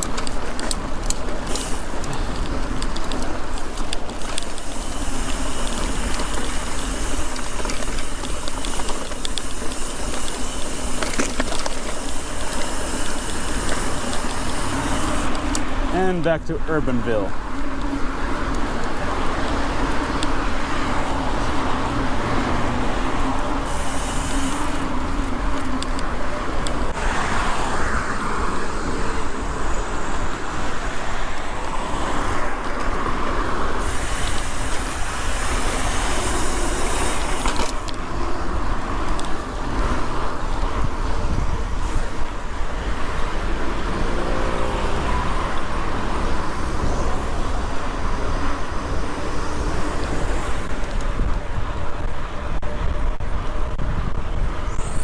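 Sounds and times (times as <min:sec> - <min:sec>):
cars passing: 0:00.0 - 0:52.9
wind rumble on microphone: 0:37.9 - 0:55.0.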